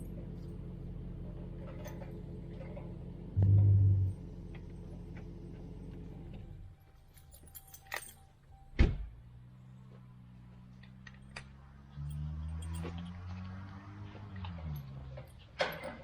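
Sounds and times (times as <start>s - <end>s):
low engine hum: 0.0s - 16.0s
metallic clinks: 6.6s - 8.7s, 10.8s - 13.7s, 14.3s - 16.0s.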